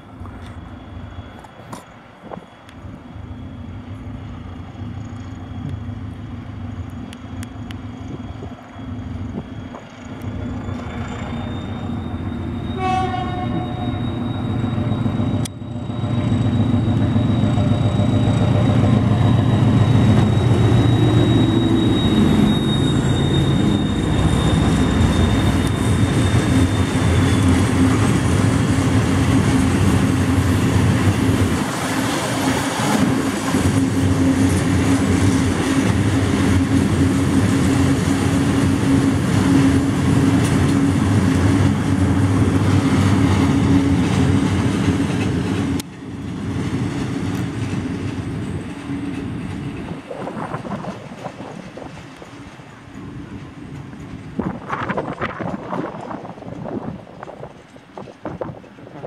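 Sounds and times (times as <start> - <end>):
wagons rumbling over rails: 0.0 - 59.0
locomotive horn blast: 12.7 - 14.2.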